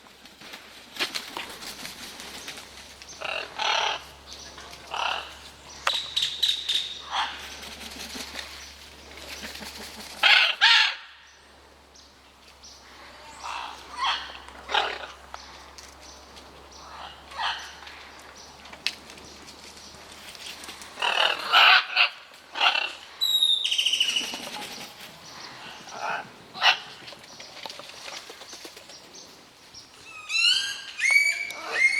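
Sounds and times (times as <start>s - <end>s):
parrots squawking: 3.2s - 4.1s, 4.9s - 5.4s, 13.4s - 15.2s, 16.8s - 17.8s, 21.0s - 23.4s, 30.1s - 31.9s.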